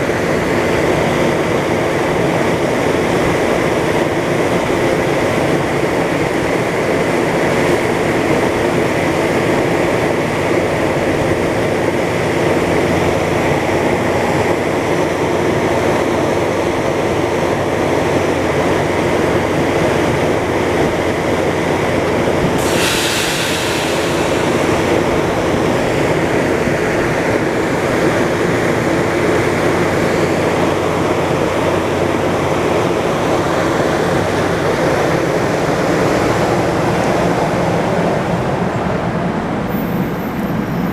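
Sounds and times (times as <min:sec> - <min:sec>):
locomotive diesel engine humming: 0:00.0 - 0:40.9
sharp hiss of air: 0:22.4 - 0:28.1.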